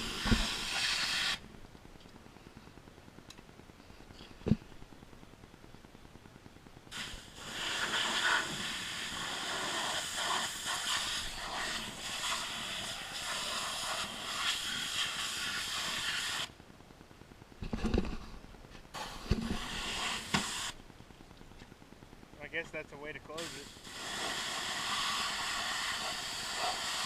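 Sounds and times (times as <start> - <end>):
pressure washer spraying: 0.0 - 1.4, 6.9 - 16.5, 19.0 - 20.8, 23.4 - 27.0.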